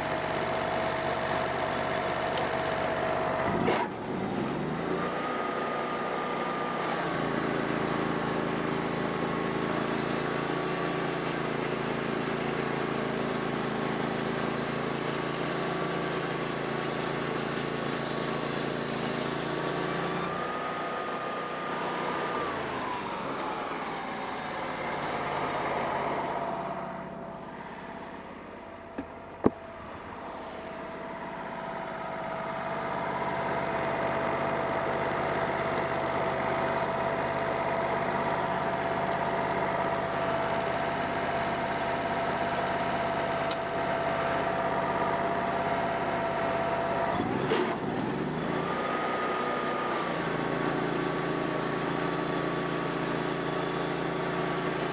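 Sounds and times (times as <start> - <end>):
sawmill engine running: 0.0 - 54.9.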